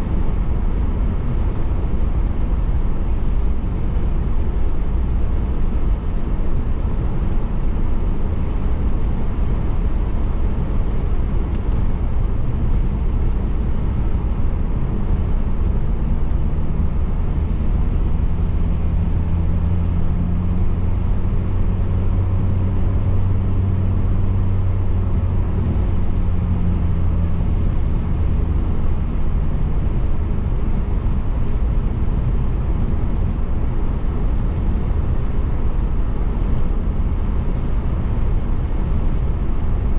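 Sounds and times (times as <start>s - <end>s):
low car engine hum: 0.0s - 39.9s
road and tyre noise: 0.0s - 39.9s.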